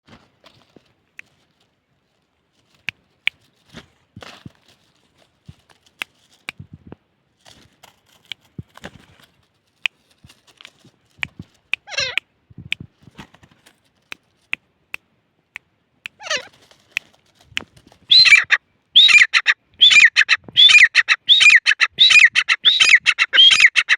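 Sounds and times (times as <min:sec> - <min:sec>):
francolin calling: 0:18.1 - 0:23.9.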